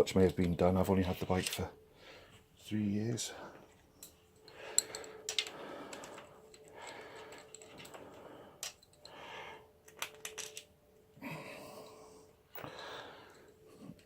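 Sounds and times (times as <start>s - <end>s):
metal bolts clinking: 4.0s - 9.1s, 9.8s - 10.8s.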